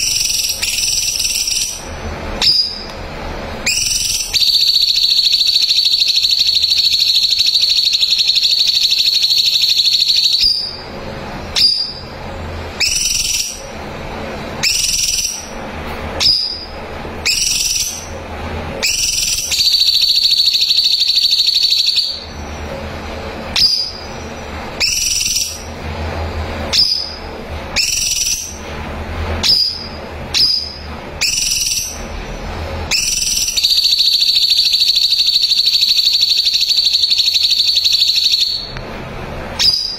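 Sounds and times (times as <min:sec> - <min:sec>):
bulbul singing whistled notes: 0:00.0 - 0:02.9, 0:03.6 - 0:10.8, 0:12.8 - 0:13.6, 0:14.6 - 0:15.5, 0:16.2 - 0:18.1, 0:18.8 - 0:22.3, 0:23.6 - 0:24.2, 0:24.8 - 0:25.7, 0:27.8 - 0:28.6, 0:29.4 - 0:32.0, 0:32.9 - 0:38.7, 0:39.6 - 0:39.9.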